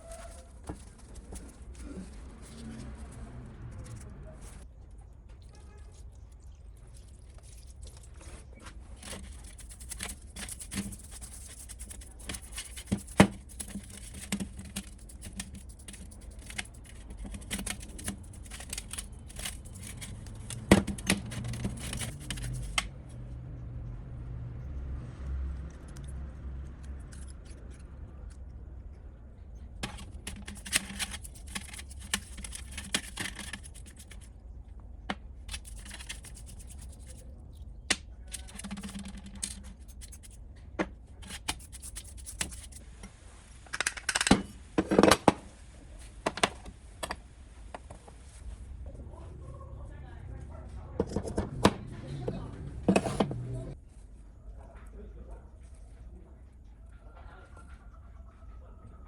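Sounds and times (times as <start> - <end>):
metal parts clicking and scraping: 9.0 - 22.9, 29.8 - 34.3, 35.5 - 40.4, 41.2 - 42.8
low hum: 48.1 - 53.9.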